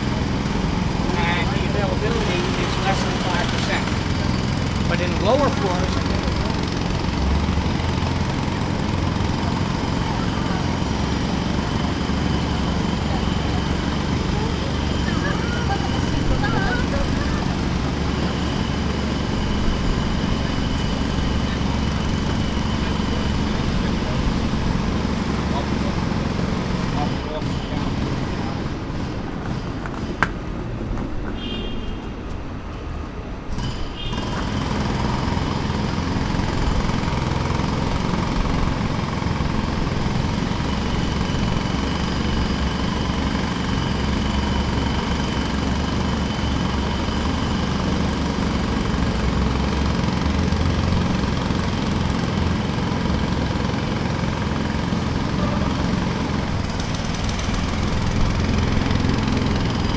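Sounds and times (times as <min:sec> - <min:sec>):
pneumatic jackhammer: 0:00.0 - 0:30.6, 0:33.4 - 0:59.9
machinery running: 0:00.0 - 0:31.2, 0:32.5 - 0:59.9.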